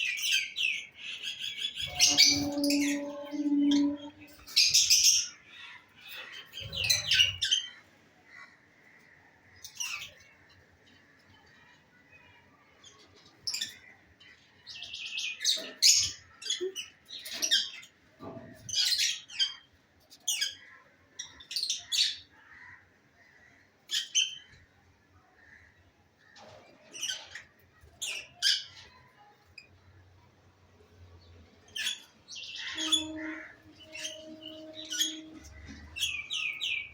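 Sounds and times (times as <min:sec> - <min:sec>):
lovebirds chirping and squawking: 0:00.0 - 0:11.0, 0:12.9 - 0:18.0, 0:25.4 - 0:29.8, 0:31.2 - 0:36.9.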